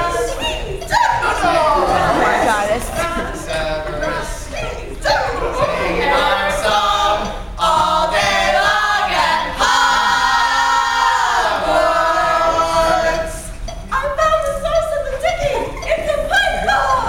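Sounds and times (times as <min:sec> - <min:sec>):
voices singing a cappella: 0:00.0 - 0:17.0.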